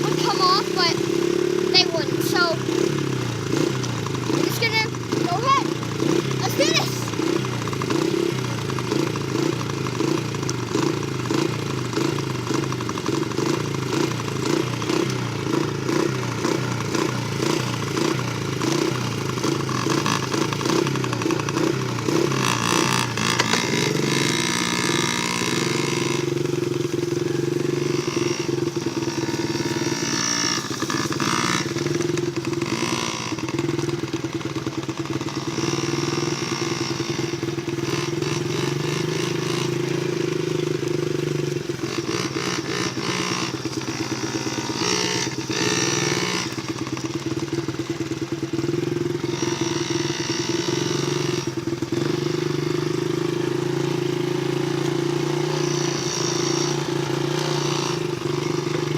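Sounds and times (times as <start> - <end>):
dirt bike engine running: 0.0 - 58.9.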